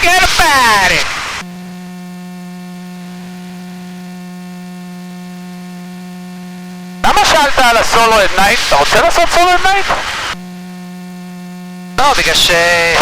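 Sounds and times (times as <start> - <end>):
people talking: 0.0 - 1.2, 7.0 - 10.2, 12.0 - 13.0
steady electrical hum: 0.0 - 13.0.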